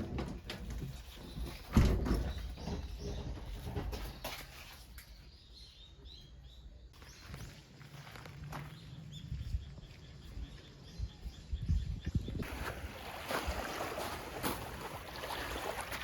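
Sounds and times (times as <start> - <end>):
small birds chirping: 0.6 - 12.5.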